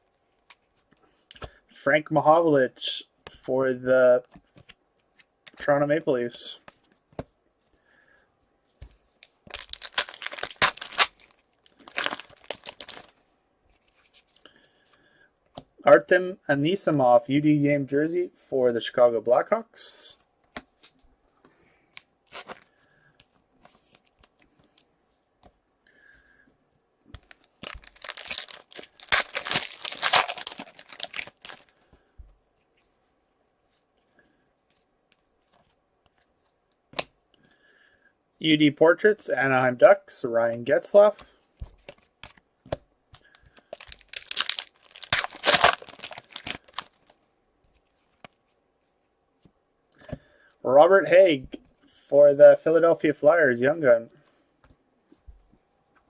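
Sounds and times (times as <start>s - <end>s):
foil wrapper tearing and crinkling: 9.5s - 13.1s, 27.2s - 31.7s, 43.5s - 47.1s.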